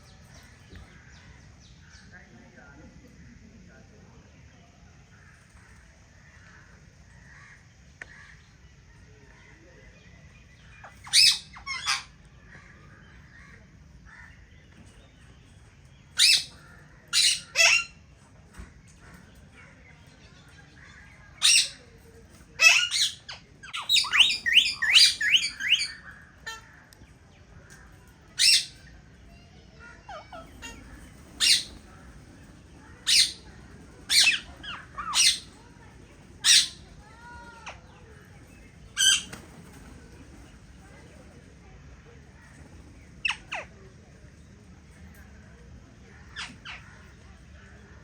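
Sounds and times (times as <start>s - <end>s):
parakeets squawking: 10.8s - 12.2s, 16.2s - 18.0s, 21.4s - 21.8s, 22.6s - 26.8s, 28.4s - 28.9s, 30.0s - 40.0s.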